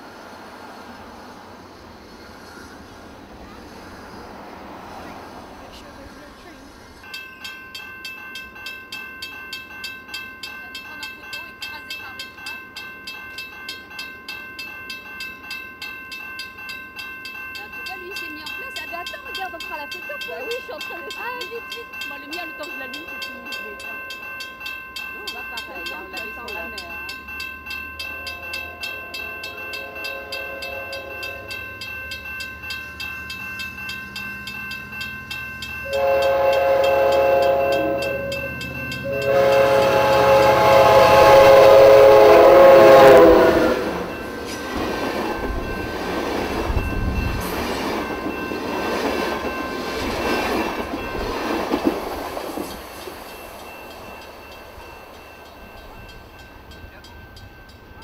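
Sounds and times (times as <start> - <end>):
train rolling past: 0.0 - 58.0
train horn blasts: 28.2 - 31.8, 35.8 - 44.4.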